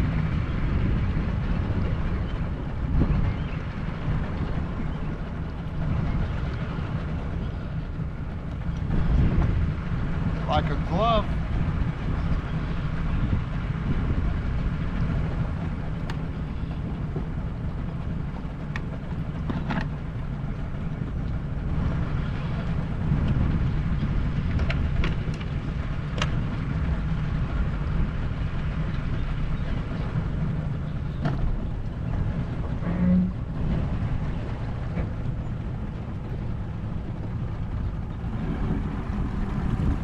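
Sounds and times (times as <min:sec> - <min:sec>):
outboard motor running: 0:00.0 - 0:40.0
wind buffeting microphone: 0:00.0 - 0:40.0.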